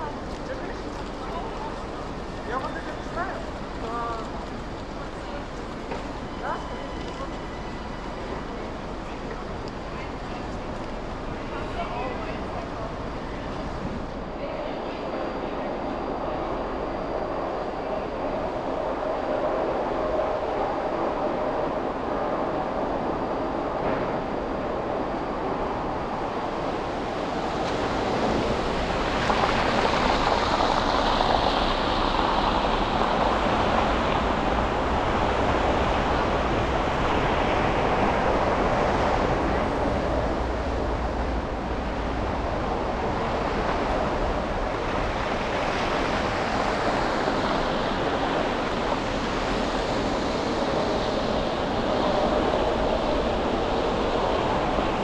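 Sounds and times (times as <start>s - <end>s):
passing vehicles: 23.2s - 55.0s
tyres hissing on road: 24.2s - 55.0s.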